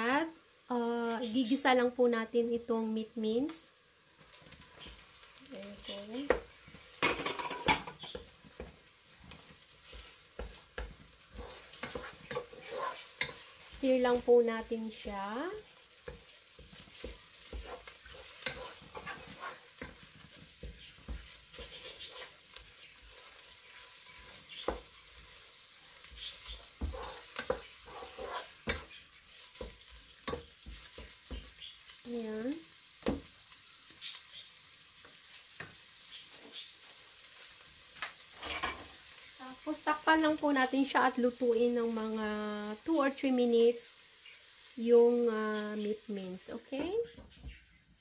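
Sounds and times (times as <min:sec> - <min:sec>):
meat sizzling in a pot: 0:00.0 - 0:48.0
wooden spatula scraping and knocking: 0:05.8 - 0:31.6, 0:38.0 - 0:39.0.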